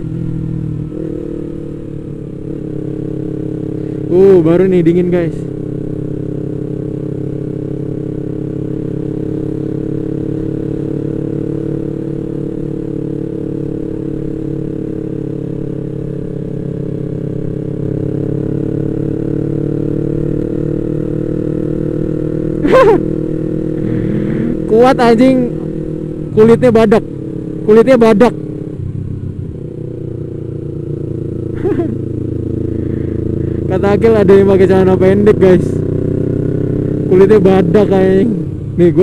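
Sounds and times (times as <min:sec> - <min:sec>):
motorcycle engine cruising: 0:00.0 - 0:39.0.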